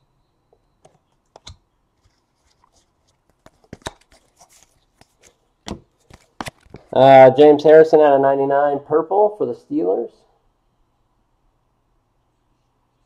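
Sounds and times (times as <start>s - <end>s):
trading cards clicking and rustling: 0.8s - 6.9s.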